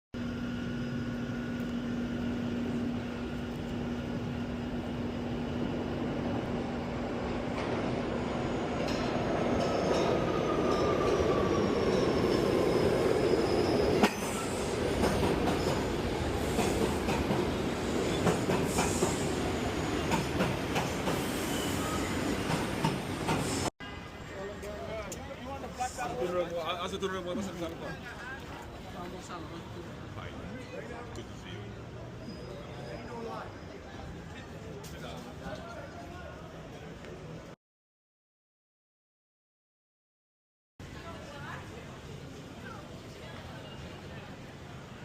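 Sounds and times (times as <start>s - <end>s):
subway train rumbling: 0.4s - 37.5s, 40.8s - 45.0s
faint high squeal: 10.2s - 14.8s, 21.3s - 22.3s, 32.2s - 34.1s.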